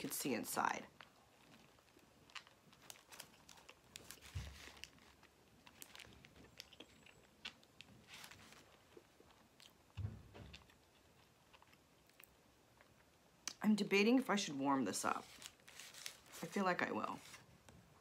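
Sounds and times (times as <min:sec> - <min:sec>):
soft low thump: 0:10.0 - 0:10.6.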